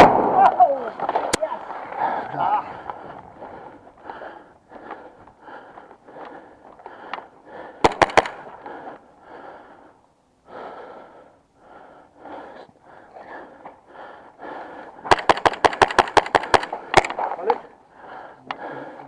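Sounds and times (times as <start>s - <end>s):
airsoft gun shots: 0.0s - 0.8s, 7.8s - 8.4s, 15.1s - 17.2s.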